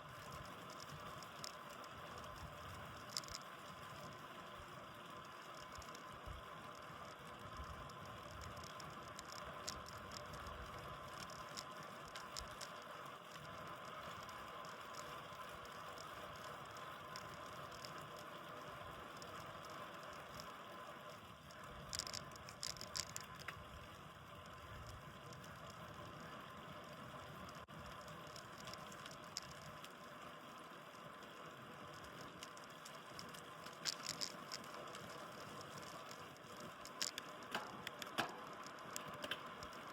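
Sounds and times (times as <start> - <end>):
bicycle tyre and wind noise: 0.0 - 39.9
light clicks: 0.1 - 4.2, 5.0 - 20.5, 21.5 - 26.2, 26.8 - 30.1, 31.8 - 39.9
bike light clicks and rattles: 21.5 - 23.7, 32.0 - 39.9.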